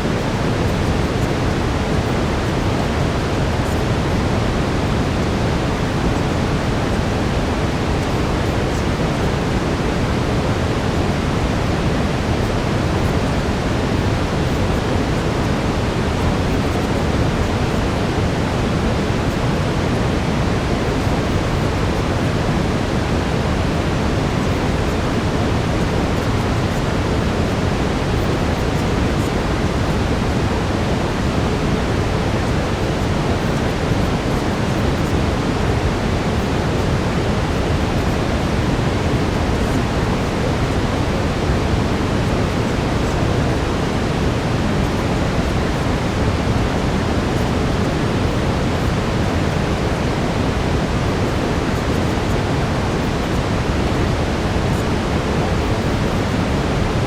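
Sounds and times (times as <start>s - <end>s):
brown noise hiss: 0.0s - 57.0s.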